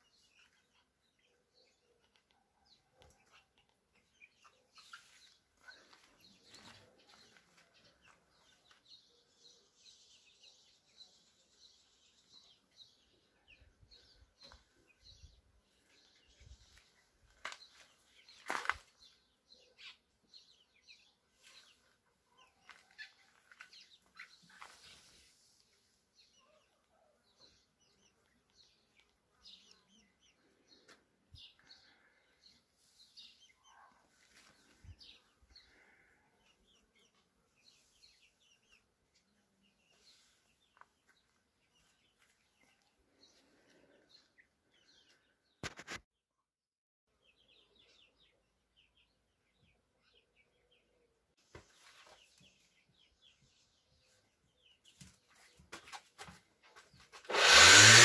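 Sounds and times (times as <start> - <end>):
faint birds chirping: 0.0 - 46.4, 47.1 - 58.0.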